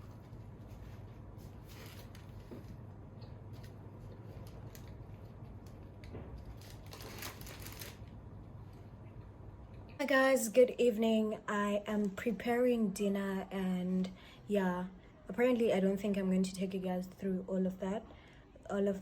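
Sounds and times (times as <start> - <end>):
rustling of things handled: 0.0 - 8.1
low steady hum: 0.0 - 19.0.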